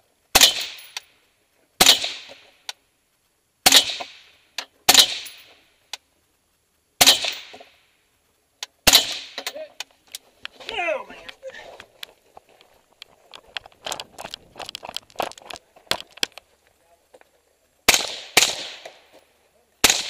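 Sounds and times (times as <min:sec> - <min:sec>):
rifle shots: 0:00.3 - 0:01.0, 0:01.8 - 0:02.6, 0:03.6 - 0:05.6, 0:07.0 - 0:07.8, 0:08.8 - 0:09.6, 0:17.8 - 0:19.1, 0:19.8 - 0:20.0.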